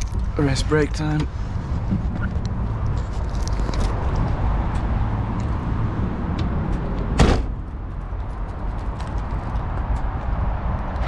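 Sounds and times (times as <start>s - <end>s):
car engine rumble: 0.0s - 11.0s
loud short thump: 7.2s - 7.6s.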